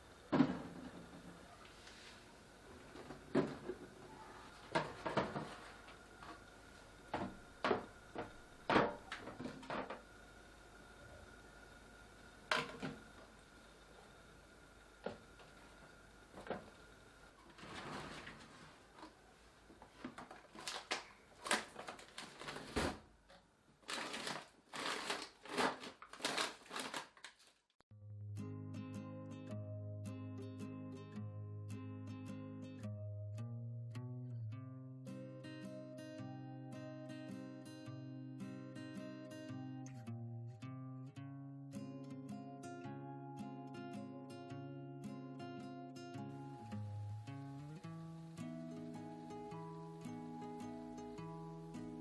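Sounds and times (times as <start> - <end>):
plastic packaging crinkling: 19.8 - 23.0, 23.8 - 27.8
guitar music: 27.9 - 52.0.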